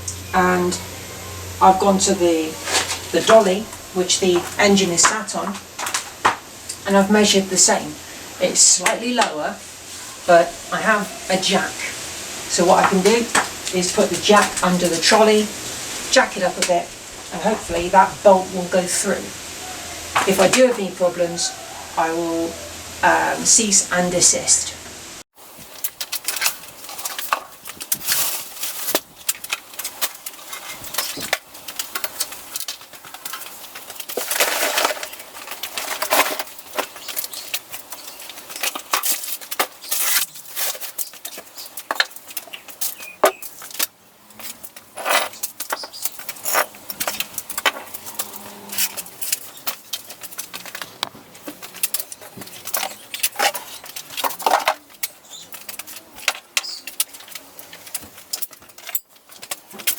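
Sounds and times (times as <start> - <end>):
metal tools clinking and scraping: 2.5 - 6.8, 25.8 - 59.9.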